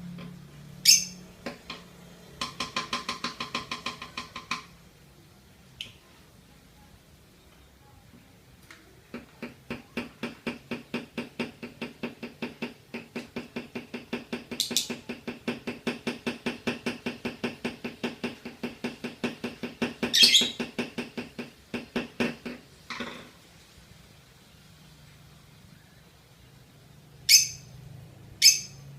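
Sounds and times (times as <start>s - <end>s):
lovebird chattering: 0.8s - 1.2s, 14.5s - 15.0s, 20.0s - 20.7s, 27.3s - 27.7s, 28.4s - 28.8s
shrill bird squeaks: 0.8s - 1.2s, 20.1s - 20.6s, 27.3s - 27.7s, 28.4s - 28.8s.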